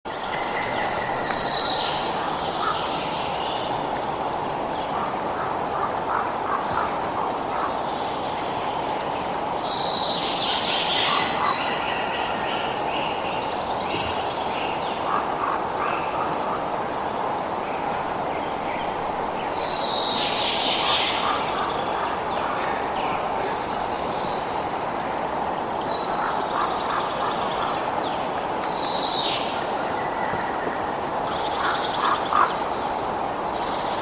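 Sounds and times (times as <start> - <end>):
birds singing: 18.4 - 24.6.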